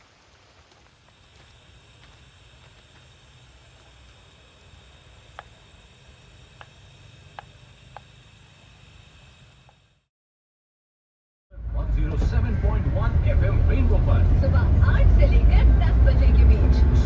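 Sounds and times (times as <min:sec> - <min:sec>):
light rain hissing: 0:00.0 - 0:10.1.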